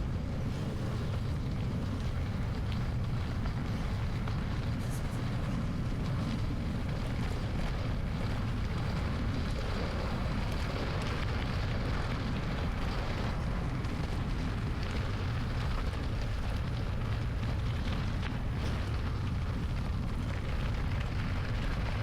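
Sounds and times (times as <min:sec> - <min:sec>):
bicycle tyres on gravel: 0:00.0 - 0:22.0
wind rumble on microphone: 0:00.0 - 0:22.0.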